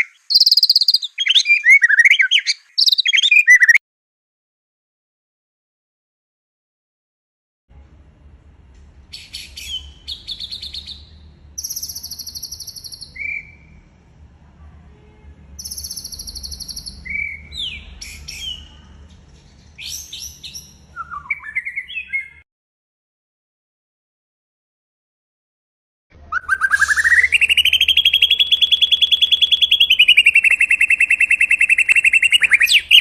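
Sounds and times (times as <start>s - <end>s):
bird singing trills and whistles: 0.0s - 3.8s, 9.1s - 13.6s, 15.6s - 18.7s, 19.8s - 22.4s, 26.3s - 33.0s
faint low hum: 7.7s - 21.2s.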